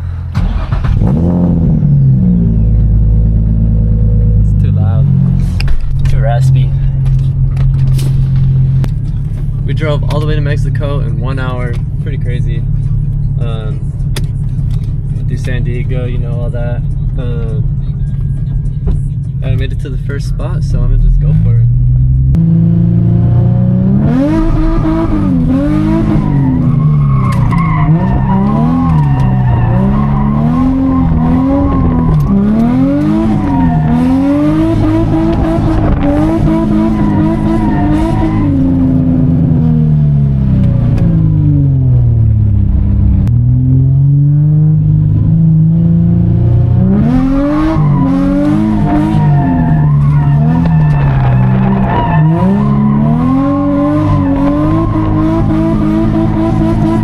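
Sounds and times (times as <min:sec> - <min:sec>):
car engine revving with raspy exhaust: 0:00.0 - 0:57.0
tyres squealing: 0:24.6 - 0:38.8, 0:47.2 - 0:57.0.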